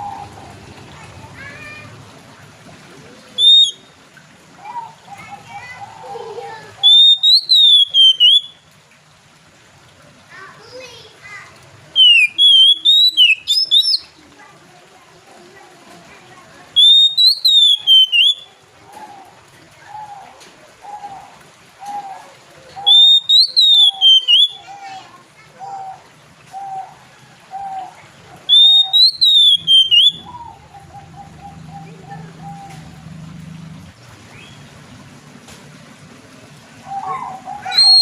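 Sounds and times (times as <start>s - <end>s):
bird whistled song phrases: 3.4s - 4.0s, 6.8s - 8.6s, 12.0s - 14.1s, 16.8s - 18.6s, 22.8s - 24.9s, 28.5s - 30.8s, 36.8s - 38.0s.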